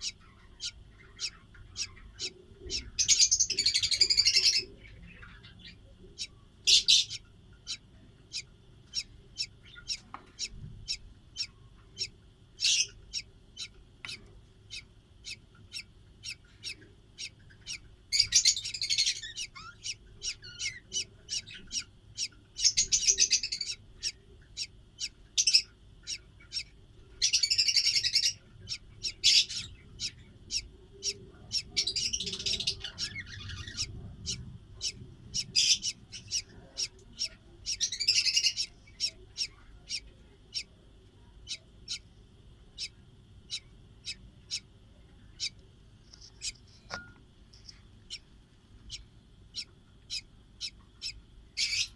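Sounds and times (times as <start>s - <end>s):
budgerigars chirping: 0.0s - 40.7s, 41.4s - 42.0s, 42.8s - 44.7s, 45.3s - 45.6s, 48.9s - 51.9s
budgerigar chatter: 0.0s - 42.1s, 42.7s - 45.6s, 48.9s - 51.9s.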